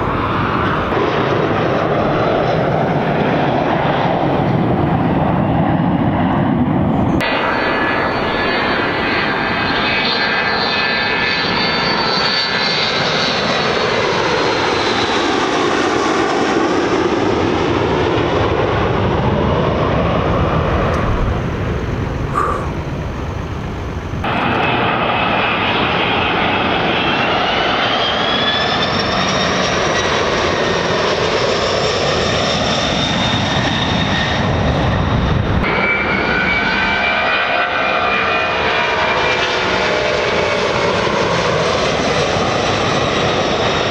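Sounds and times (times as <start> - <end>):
aircraft engine flying over: 0.0 - 43.9
high whining tones: 20.3 - 24.5.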